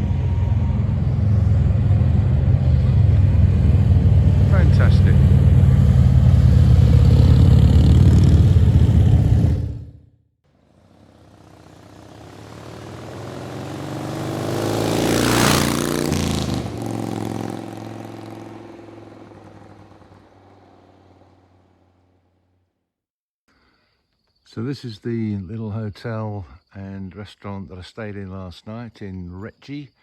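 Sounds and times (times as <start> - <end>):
motorcycle engines running: 0.0 - 10.0, 10.8 - 21.8
vehicle passing by: 0.0 - 10.0, 10.8 - 22.0.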